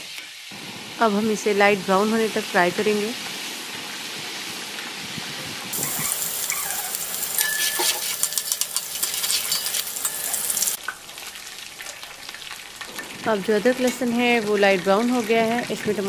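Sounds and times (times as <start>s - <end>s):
paste sizzling in hot oil: 5.7s - 13.2s
metal spoon clinking and scraping: 6.0s - 10.8s.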